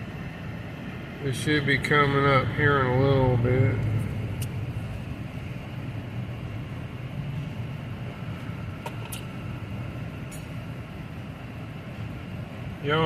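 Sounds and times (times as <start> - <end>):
freight train rumbling: 0.0 - 10.1.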